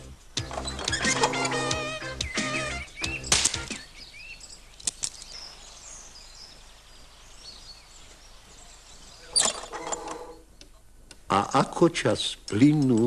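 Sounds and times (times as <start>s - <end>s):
faint high chirping: 0.6s - 10.7s.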